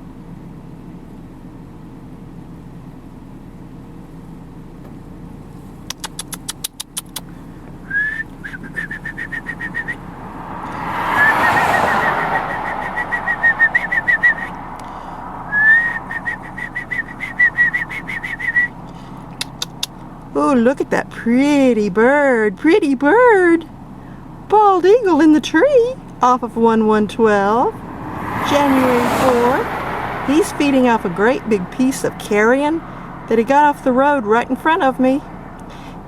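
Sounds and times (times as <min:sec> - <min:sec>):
car passing: 0:07.2 - 0:20.4, 0:26.6 - 0:36.0
person whistling trills: 0:07.8 - 0:10.1, 0:11.2 - 0:14.6, 0:15.5 - 0:18.8.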